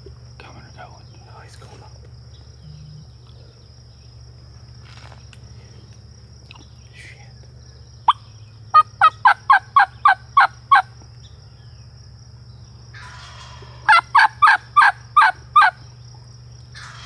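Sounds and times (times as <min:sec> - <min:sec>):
hen turkey yelps: 0:08.1 - 0:10.9, 0:13.0 - 0:15.8, 0:16.8 - 0:17.0
rattling turkey gobble: 0:08.1 - 0:10.9, 0:12.9 - 0:15.8, 0:16.7 - 0:17.0.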